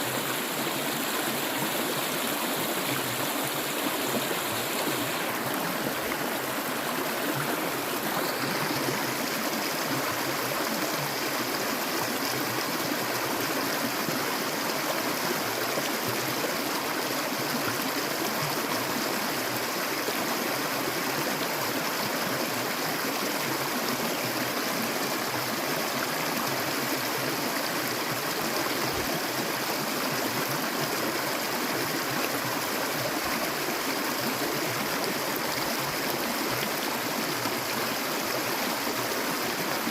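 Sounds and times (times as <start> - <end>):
stream of water flowing: 0.0 - 39.9.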